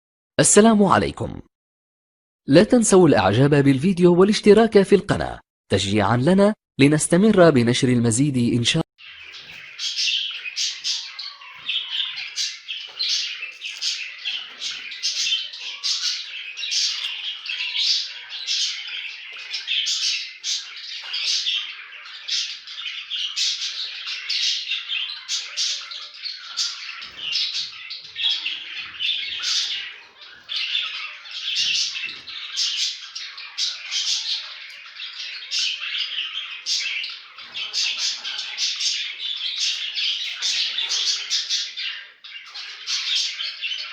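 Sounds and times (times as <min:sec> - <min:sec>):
flock of finches calling: 0:09.0 - 0:43.9.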